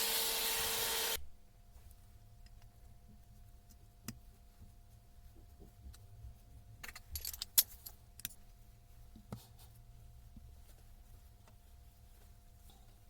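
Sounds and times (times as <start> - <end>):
low steady hum: 0.1 - 13.0
small metal parts clinking: 6.8 - 8.4.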